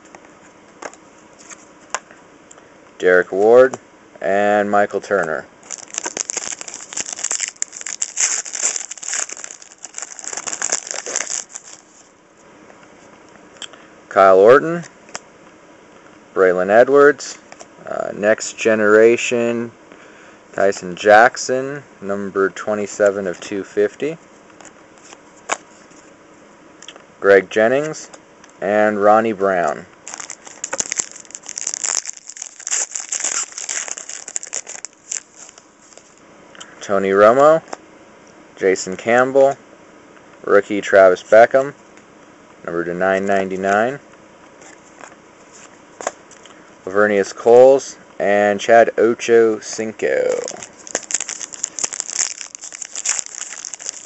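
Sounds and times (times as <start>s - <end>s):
plastic wrapper crinkling: 5.6s - 12.1s, 30.0s - 36.2s, 50.3s - 54.0s.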